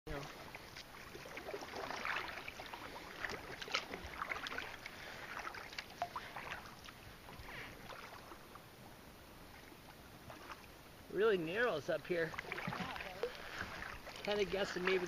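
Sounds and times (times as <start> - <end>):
paddle strokes splashing: 0.1 - 15.0
water dripping off paddle: 0.2 - 8.6, 12.3 - 15.0.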